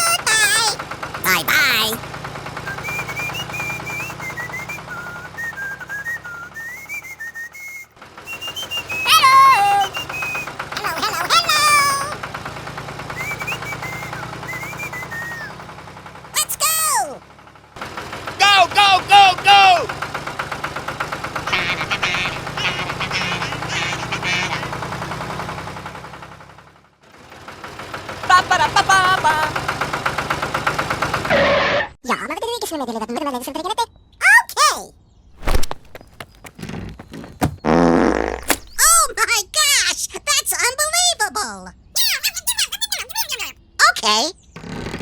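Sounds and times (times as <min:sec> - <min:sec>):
small tractor motor running: 0:00.0 - 0:31.9, 0:35.4 - 0:39.2, 0:44.6 - 0:45.0
person whistling a tune: 0:02.7 - 0:10.5, 0:13.1 - 0:15.6.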